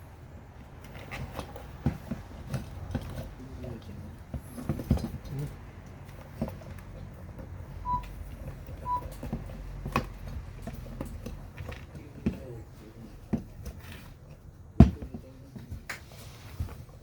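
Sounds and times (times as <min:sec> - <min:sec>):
short beeps: 0:07.8 - 0:08.1, 0:08.8 - 0:09.1.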